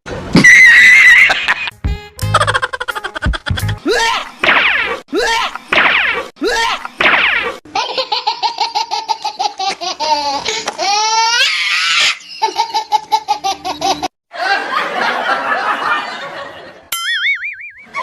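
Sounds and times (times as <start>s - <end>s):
person laughing hard: 1.0s - 1.7s, 2.3s - 4.4s.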